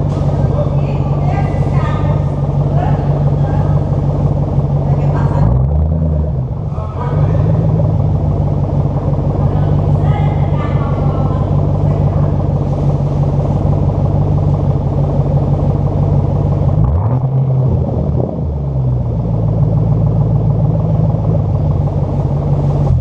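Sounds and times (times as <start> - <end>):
car engine exhaust running: 0.0 - 23.0.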